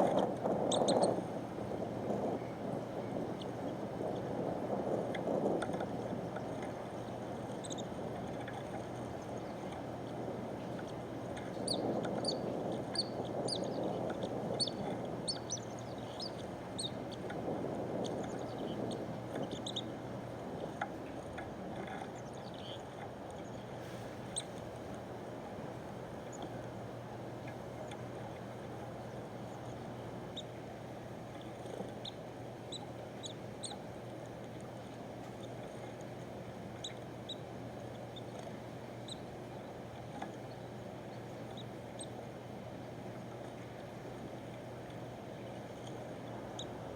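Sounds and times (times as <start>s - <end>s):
low background noise: 0.0s - 46.9s
steady low hum: 0.0s - 46.9s
small birds chirping: 11.6s - 17.2s.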